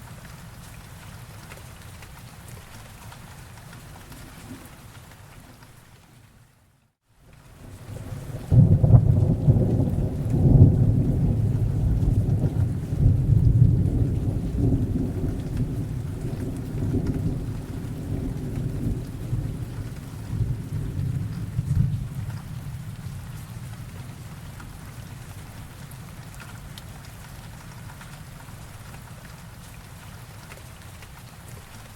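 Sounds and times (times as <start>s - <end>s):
steady rain: 0.0s - 31.9s
deep roll of thunder: 7.6s - 24.3s.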